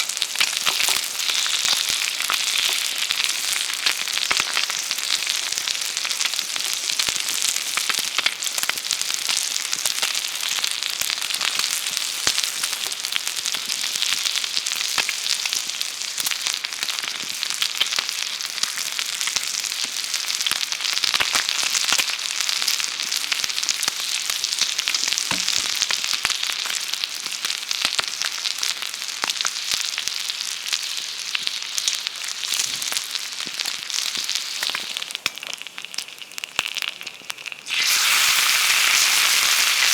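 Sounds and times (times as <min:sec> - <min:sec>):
meat sizzling over fire: 0:00.0 - 0:39.9
fire crackling pops: 0:25.2 - 0:26.3.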